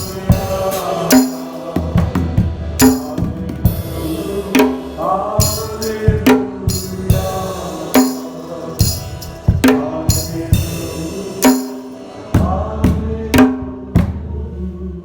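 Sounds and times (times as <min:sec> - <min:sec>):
drums and jingling percussion: 0:00.0 - 0:04.2, 0:05.4 - 0:12.2
voices singing: 0:00.0 - 0:15.0.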